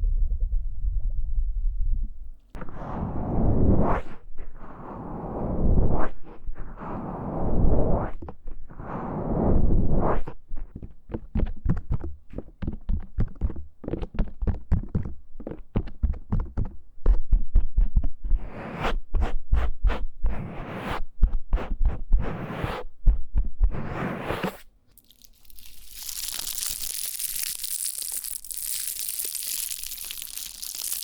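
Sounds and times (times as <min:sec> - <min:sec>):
scratching on microphone: 0:02.6 - 0:31.0
tapping on microphone: 0:10.7 - 0:18.1
rubbing strokes: 0:18.3 - 0:26.2.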